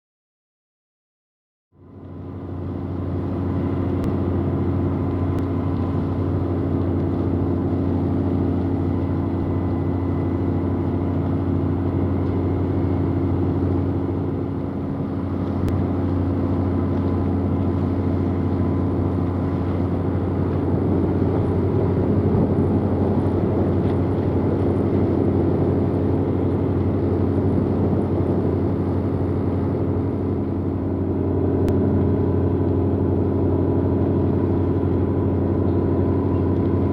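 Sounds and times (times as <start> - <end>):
ship diesel engine drone: 1.7 - 36.9
faint higher hum: 24.7 - 36.9.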